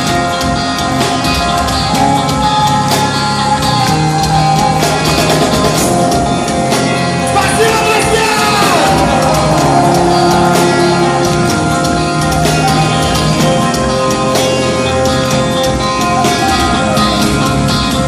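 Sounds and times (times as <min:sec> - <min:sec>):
drums: 0:00.0 - 0:18.0
guitars: 0:00.0 - 0:18.0
person singing: 0:07.3 - 0:14.8, 0:15.6 - 0:18.0.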